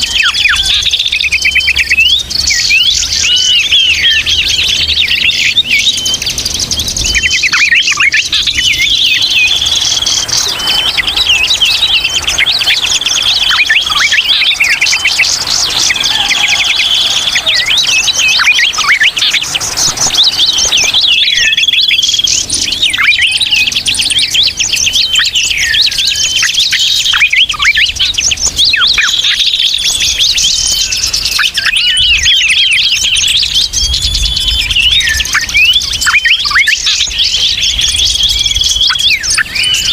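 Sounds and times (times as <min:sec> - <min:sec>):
birds chattering: 0:00.0 - 0:39.9.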